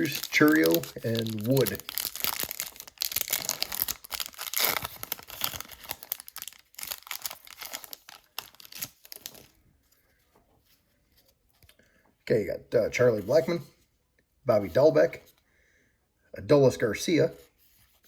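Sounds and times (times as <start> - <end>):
card pack wrapper crinkling: 0.0 - 9.6.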